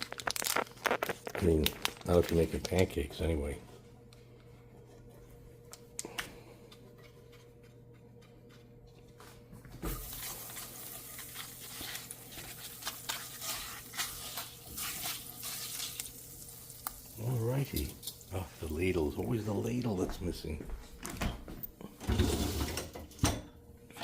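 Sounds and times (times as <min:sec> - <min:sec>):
low steady hum: 0:00.0 - 0:24.0
butter sizzling in a pan: 0:09.9 - 0:18.3.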